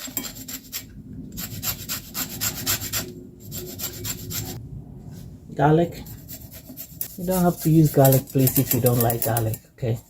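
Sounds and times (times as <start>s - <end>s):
lemon rasping on a grater: 6.1s - 9.6s.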